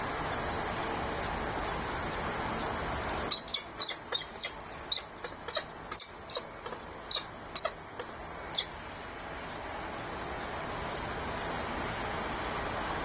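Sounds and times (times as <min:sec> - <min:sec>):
bird chirping: 0:03.3 - 0:08.8.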